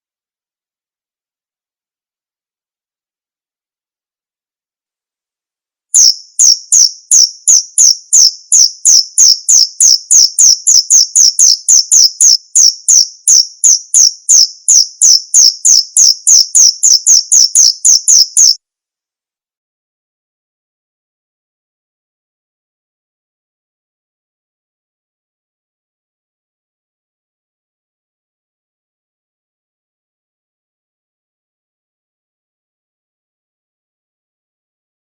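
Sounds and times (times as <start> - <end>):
cricket chirping: 6.0 - 18.6.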